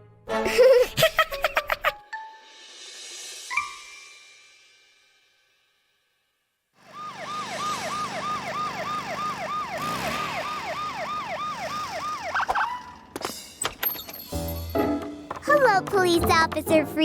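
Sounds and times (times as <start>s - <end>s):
cartoon police siren: 6.8s - 13.1s.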